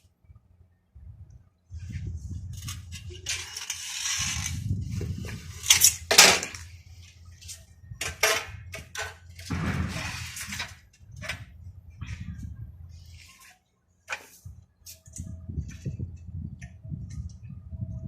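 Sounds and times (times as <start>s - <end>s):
rasping scraping of window: 2.4s - 7.6s.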